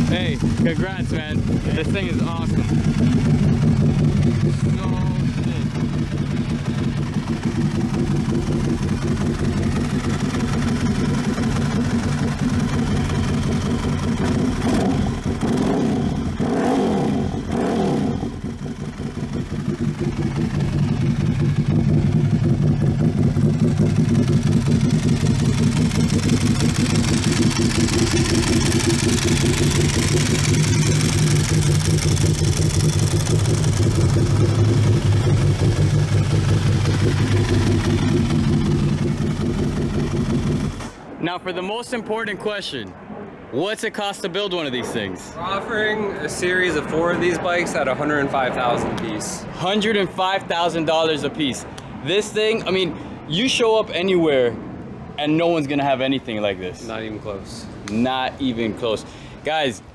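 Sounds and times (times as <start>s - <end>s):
motorcycle engine idling: 0.0s - 16.5s, 17.1s - 41.0s
motorcycle engine revving: 0.0s - 41.0s.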